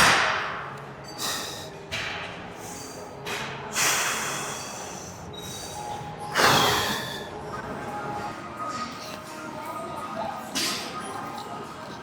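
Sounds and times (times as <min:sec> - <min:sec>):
faint gym music: 0:00.0 - 0:12.0.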